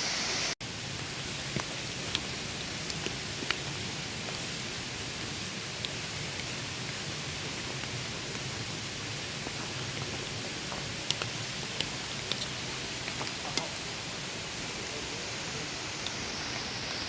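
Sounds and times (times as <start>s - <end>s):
waterfall rushing: 0.0s - 0.6s, 12.5s - 17.0s.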